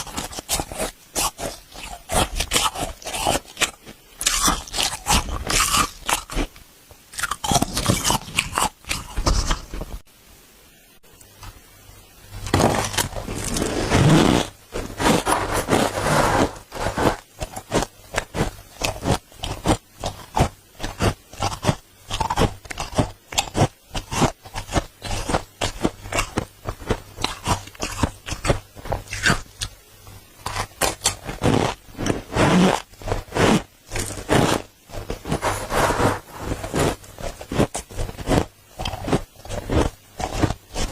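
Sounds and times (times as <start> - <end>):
spoon scraping frost: 0.0 - 6.5, 12.4 - 29.4, 30.5 - 40.9
crunchy bites: 0.0 - 9.8, 12.4 - 29.8, 30.4 - 40.9.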